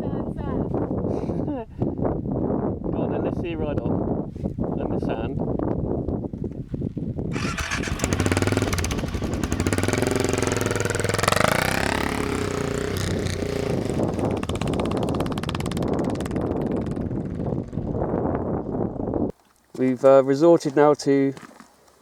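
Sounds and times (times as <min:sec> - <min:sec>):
motorcycle engine revving: 0:07.3 - 0:18.9.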